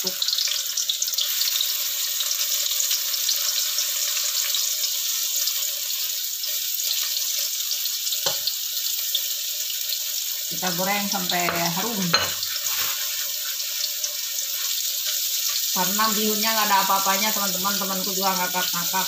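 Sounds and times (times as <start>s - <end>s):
oil sizzling in a wok: 0.0s - 19.0s
spatula stirring: 11.4s - 16.9s.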